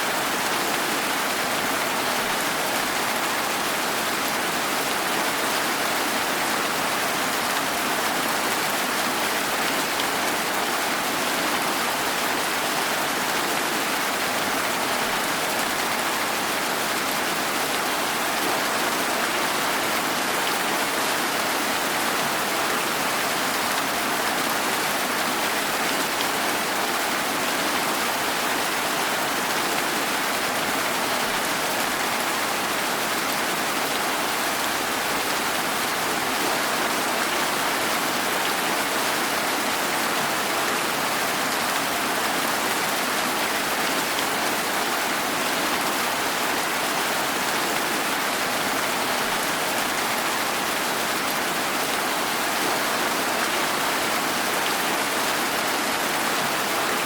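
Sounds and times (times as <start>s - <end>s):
rain falling on a surface: 0.0s - 57.0s.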